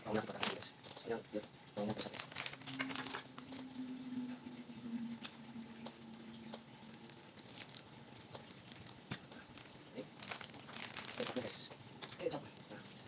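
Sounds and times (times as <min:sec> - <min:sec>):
plastic sachets crinkling: 0:00.0 - 0:01.2, 0:01.8 - 0:03.7, 0:06.8 - 0:12.4
faint low hum: 0:00.0 - 0:13.0.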